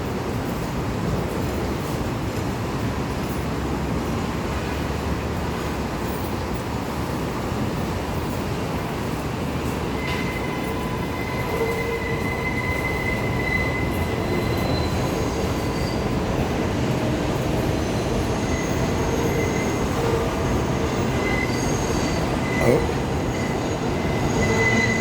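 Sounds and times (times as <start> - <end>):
subway train rumbling: 0.0 - 25.0
wheels squealing on rails: 8.3 - 25.0.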